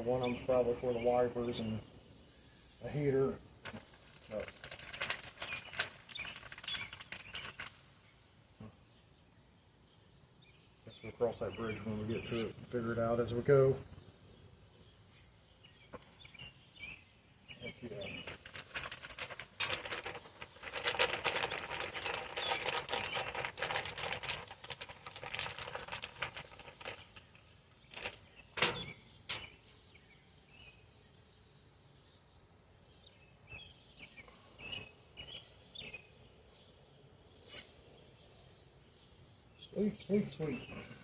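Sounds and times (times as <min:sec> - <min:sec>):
faint bird chirps: 0:04.3 - 0:18.9, 0:26.0 - 0:41.0.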